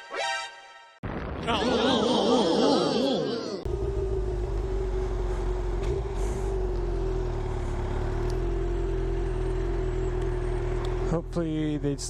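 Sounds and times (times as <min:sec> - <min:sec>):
motorcycle engine running steadily: 0:03.7 - 0:12.0.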